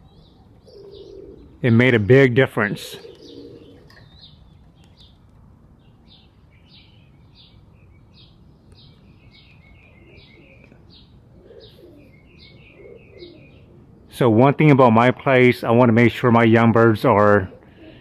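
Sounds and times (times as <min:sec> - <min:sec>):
small songbird chirping: 0:00.0 - 0:01.7, 0:03.0 - 0:13.7
faint pigeon cooing: 0:00.0 - 0:05.2, 0:08.2 - 0:14.8, 0:16.5 - 0:18.0.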